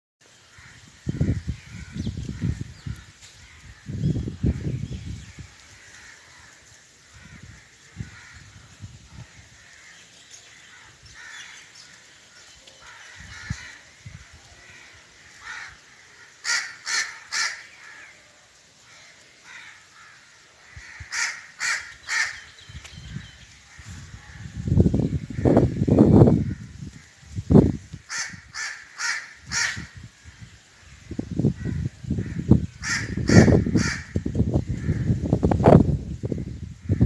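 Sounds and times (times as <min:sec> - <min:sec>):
crow cawing: 0:00.5 - 0:02.6, 0:05.8 - 0:08.6, 0:10.6 - 0:11.7, 0:12.8 - 0:14.0, 0:14.6 - 0:18.2, 0:18.8 - 0:22.5, 0:28.0 - 0:30.0, 0:31.6 - 0:35.1.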